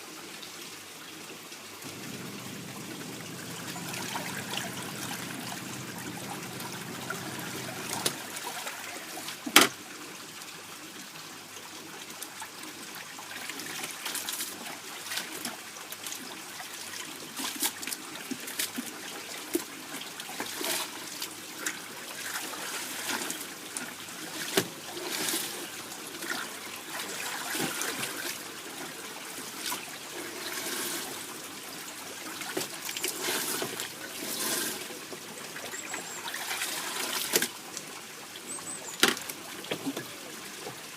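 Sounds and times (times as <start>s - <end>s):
water splashing in washing machine: 1.9s - 9.7s, 26.2s - 28.5s.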